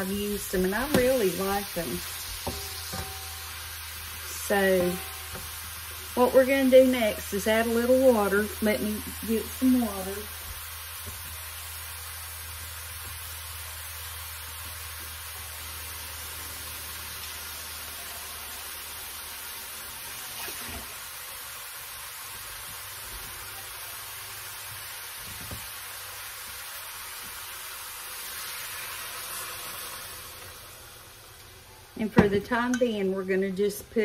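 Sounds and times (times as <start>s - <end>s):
food sizzling in a pan: 0.0s - 34.0s
water poured into pan: 16.7s - 21.2s.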